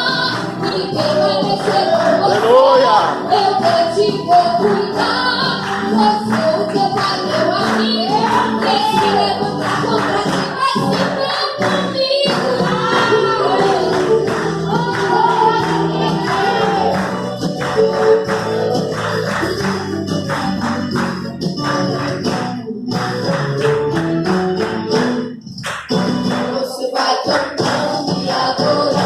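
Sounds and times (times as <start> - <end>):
woman singing: 0.0 - 18.8, 26.3 - 29.0
sustained backing instruments: 12.8 - 26.5.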